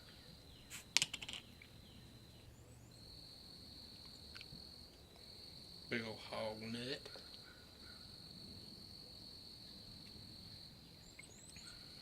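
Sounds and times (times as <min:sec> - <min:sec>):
crickets trilling: 0:00.0 - 0:12.0
sharp clicks and rustles: 0:00.7 - 0:01.5.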